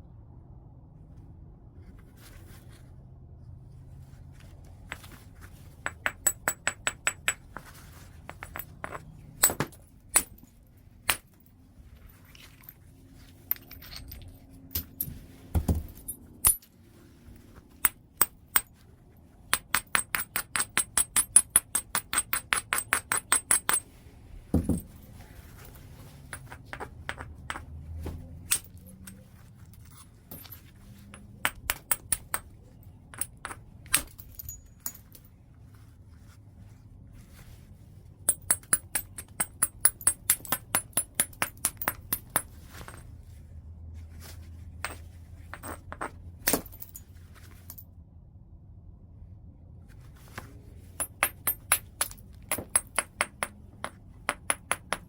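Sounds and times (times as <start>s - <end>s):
striker clicking on stone: 19.5s - 23.8s, 38.3s - 42.5s, 54.3s - 55.0s.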